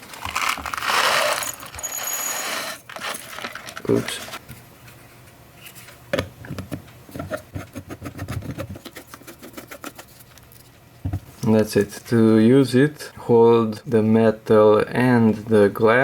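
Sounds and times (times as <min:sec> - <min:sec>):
peppercorns rattling into glass: 0:00.3 - 0:03.7.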